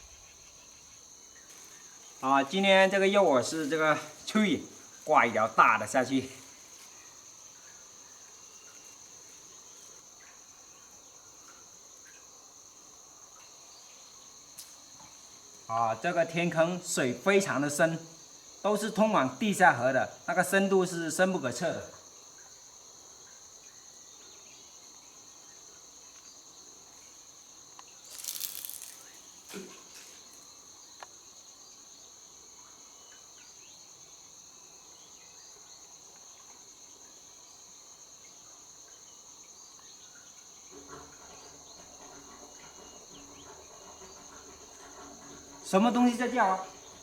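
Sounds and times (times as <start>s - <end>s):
insects chirping: 0.0s - 47.0s
rustling: 28.0s - 30.5s.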